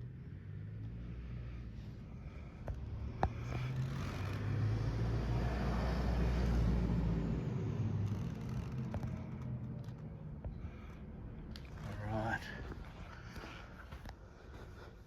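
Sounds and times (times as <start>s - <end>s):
motorcycle engine revving: 3.0s - 10.0s.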